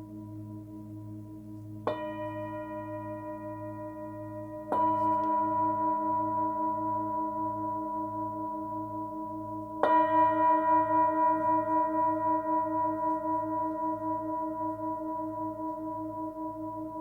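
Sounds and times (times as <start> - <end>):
singing bowl struck and ringing: 1.8 - 17.0.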